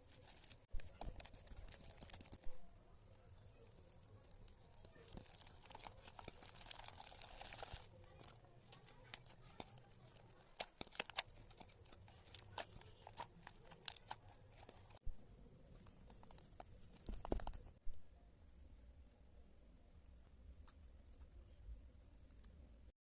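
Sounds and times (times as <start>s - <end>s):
slime squeezed crackling and popping: 0.0s - 2.4s, 3.8s - 15.0s.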